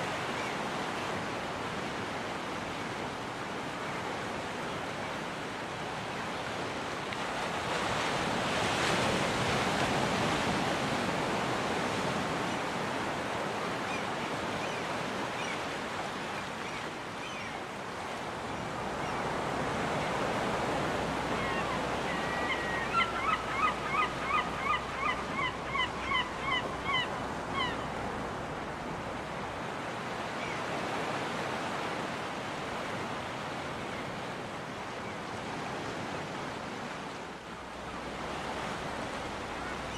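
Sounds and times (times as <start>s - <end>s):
surf washing in: 0.0s - 39.9s
seagull calling: 21.1s - 28.0s.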